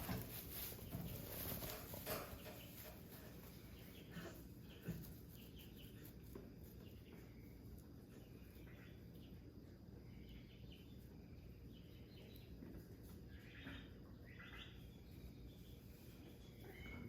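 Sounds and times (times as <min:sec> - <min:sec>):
faint rustling: 0:00.0 - 0:07.6.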